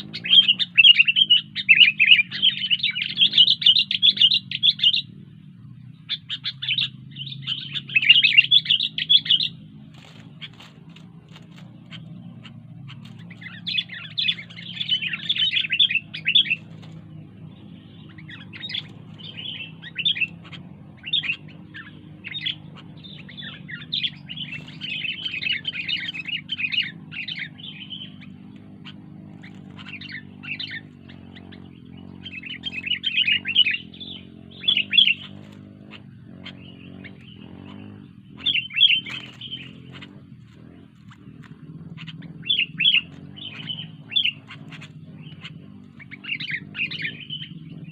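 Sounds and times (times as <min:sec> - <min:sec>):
bird chirping: 0:00.0 - 0:47.9.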